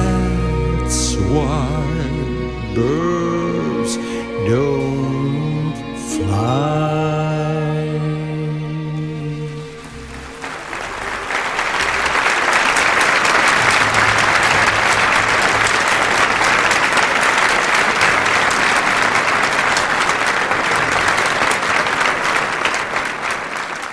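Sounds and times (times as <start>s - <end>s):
audience applauding and cheering: 9.4s - 23.9s.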